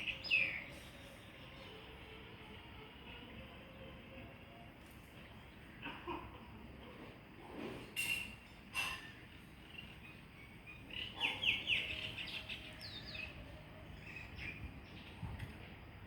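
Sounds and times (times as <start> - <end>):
birds chirping: 0.0 - 2.1, 9.0 - 15.5.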